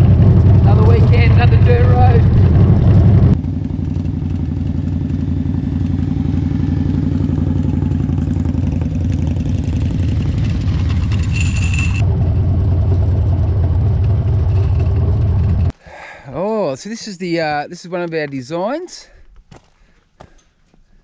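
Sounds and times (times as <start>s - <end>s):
motorcycle engine running: 0.0s - 15.7s.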